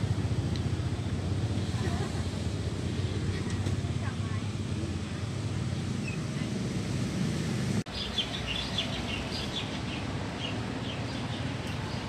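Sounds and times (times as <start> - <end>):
small birds chirping: 7.9 - 12.0.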